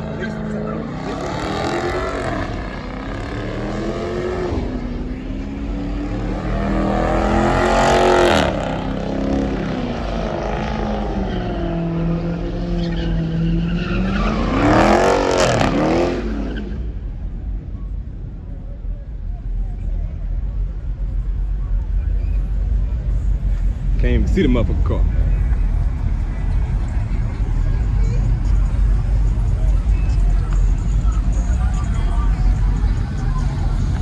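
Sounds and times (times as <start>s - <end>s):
car engine revving hard: 0.0s - 16.6s.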